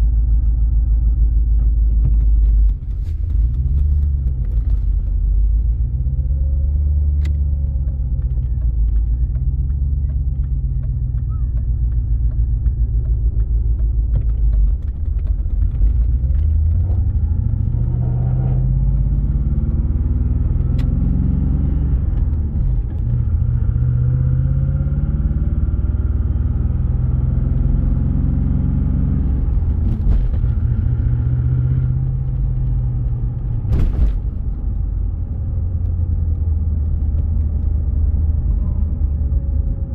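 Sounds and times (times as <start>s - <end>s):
car engine revving: 2.5s - 39.9s.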